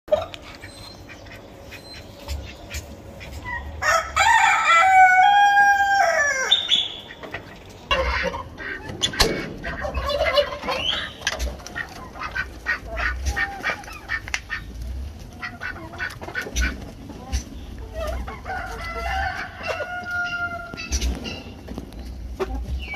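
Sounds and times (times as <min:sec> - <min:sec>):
chickens clucking: 0:00.1 - 0:22.9
rooster crowing: 0:03.8 - 0:06.7, 0:18.4 - 0:20.8.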